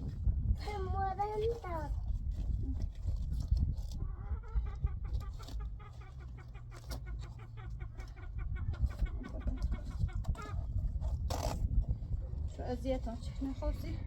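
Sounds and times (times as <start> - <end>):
chickens clucking: 3.9 - 11.2.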